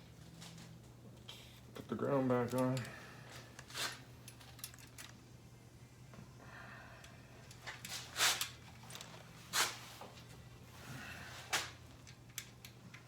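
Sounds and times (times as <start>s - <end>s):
steady low hum: 0.0s - 13.0s
tools clacking and clicking: 3.6s - 5.2s.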